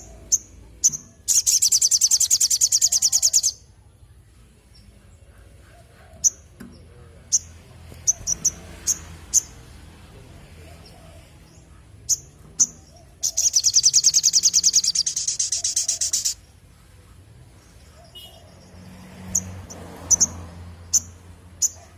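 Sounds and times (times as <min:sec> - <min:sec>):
bird chirps and trill: 0:00.0 - 0:03.7, 0:06.2 - 0:09.8, 0:10.8 - 0:16.6, 0:17.6 - 0:21.8.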